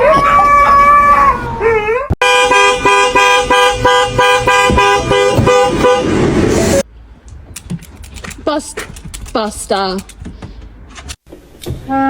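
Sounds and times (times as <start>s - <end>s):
dog howling: 0.0s - 2.1s
car horn blaring: 2.2s - 6.8s.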